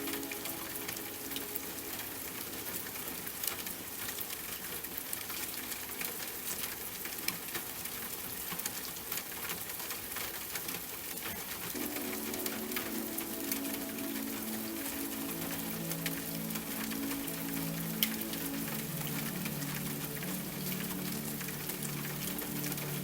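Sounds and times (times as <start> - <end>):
soft held music chord: 0.0 - 3.4, 11.7 - 23.0
steady rain: 0.0 - 23.0.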